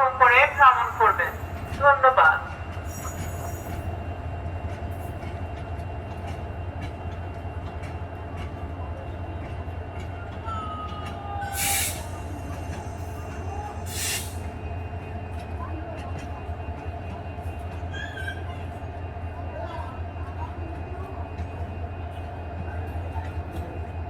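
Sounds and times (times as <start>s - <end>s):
standing train rumbling: 0.0s - 24.0s
loud hisses of air: 13.9s - 14.4s.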